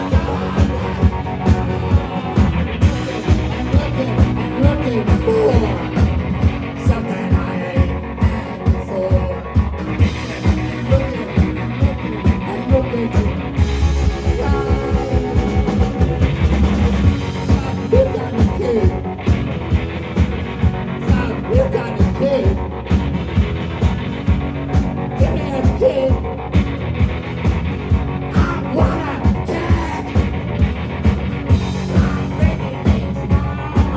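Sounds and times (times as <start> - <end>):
person singing: 0.0 - 16.5, 17.2 - 19.1, 25.2 - 26.2, 28.3 - 30.3, 31.6 - 33.9
guitar: 0.0 - 33.9
steady drum beat: 0.0 - 33.9.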